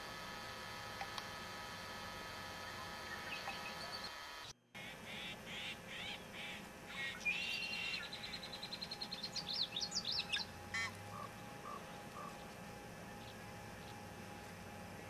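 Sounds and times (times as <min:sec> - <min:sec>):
songbird singing: 0:03.0 - 0:04.2, 0:04.8 - 0:15.0.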